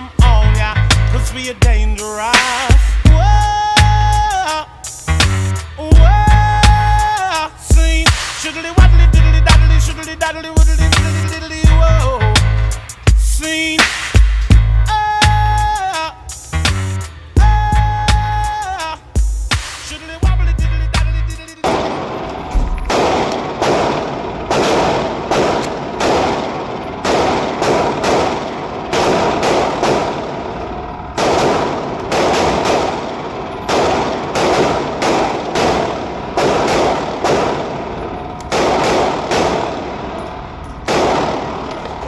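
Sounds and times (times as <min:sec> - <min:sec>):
pistol shots with echo: 0:21.6 - 0:42.0.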